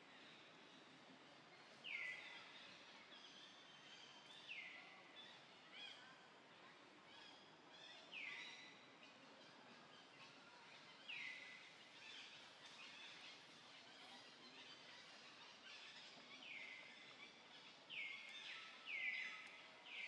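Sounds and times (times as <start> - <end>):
soft bird chirps: 7.1 - 20.0.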